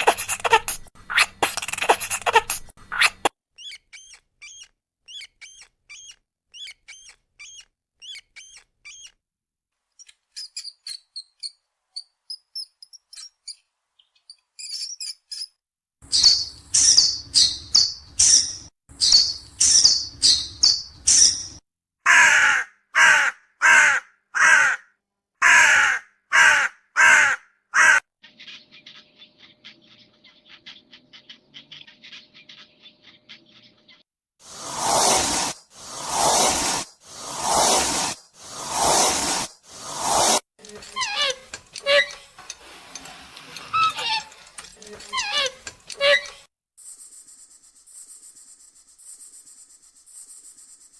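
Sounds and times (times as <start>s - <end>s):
birds chirping: 0.0s - 9.2s, 10.0s - 21.6s, 28.2s - 34.1s, 43.7s - 46.4s
harsh bird calls: 10.4s - 24.8s, 43.7s - 46.4s.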